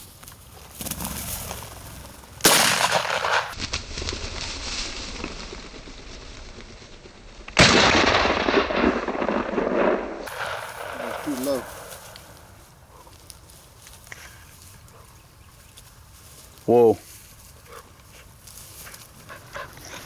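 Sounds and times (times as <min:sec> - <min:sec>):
shotgun shots: 0:02.4 - 0:03.6, 0:07.6 - 0:12.6.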